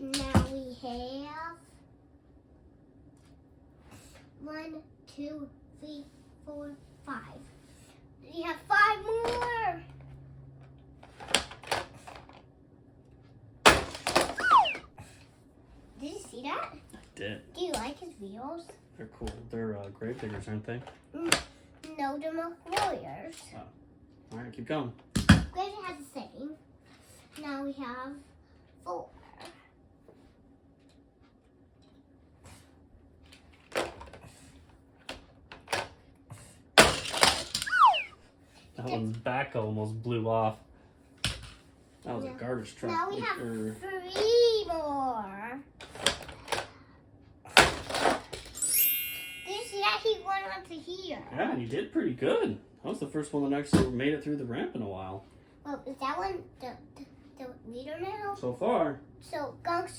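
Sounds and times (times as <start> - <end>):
brief falling tone: 14.4 - 14.9, 37.6 - 38.2
toy truck clattering on plastic track: 36.8 - 37.6, 47.6 - 48.6.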